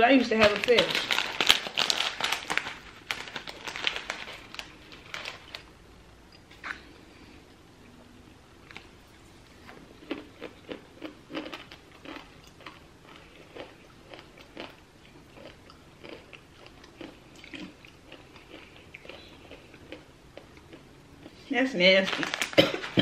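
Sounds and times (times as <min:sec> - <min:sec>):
person chewing crunchy snack: 0:09.7 - 0:21.5.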